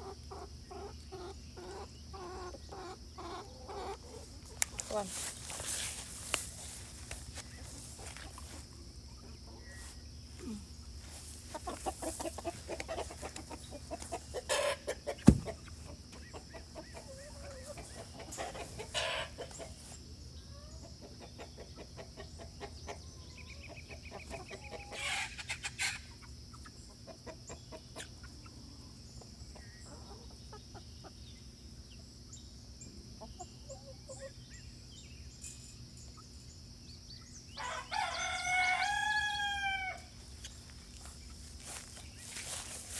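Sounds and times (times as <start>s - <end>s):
chickens clucking: 0.0s - 42.9s
sharp knock: 15.2s - 15.5s
rooster crowing: 37.6s - 40.1s.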